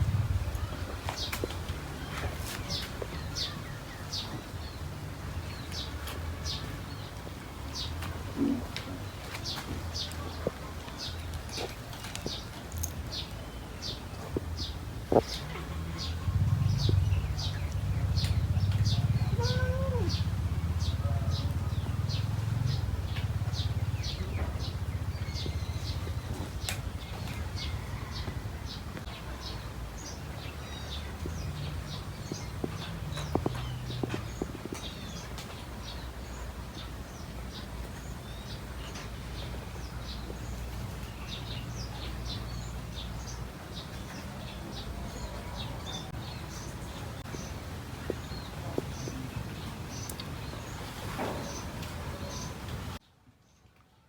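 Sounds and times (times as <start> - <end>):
low steady rumble: 0.0 - 2.4, 14.4 - 35.1
small birds chirping: 0.0 - 53.7.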